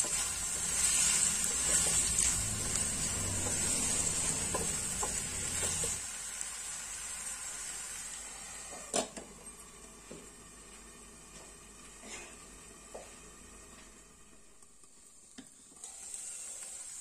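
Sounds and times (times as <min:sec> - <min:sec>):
wooden spatula stirring: 0:00.0 - 0:06.0
food sizzling in a frying pan: 0:00.0 - 0:09.0, 0:14.9 - 0:17.0.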